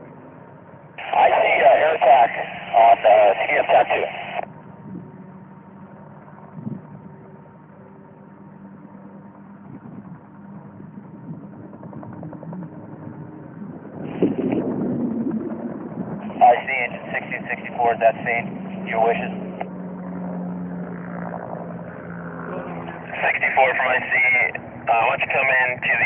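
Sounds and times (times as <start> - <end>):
faint high whine: 1.0 - 4.4
rush of noise: 1.0 - 4.4, 13.9 - 19.7, 22.5 - 26.0.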